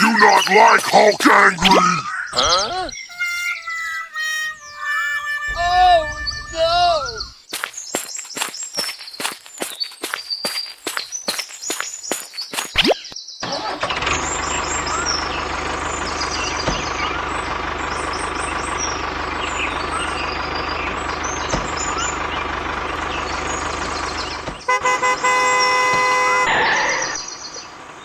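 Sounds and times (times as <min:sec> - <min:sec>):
vehicle horn honking: 0:03.1 - 0:06.8, 0:24.6 - 0:27.2
motor vehicle running: 0:05.1 - 0:12.7, 0:13.5 - 0:28.0.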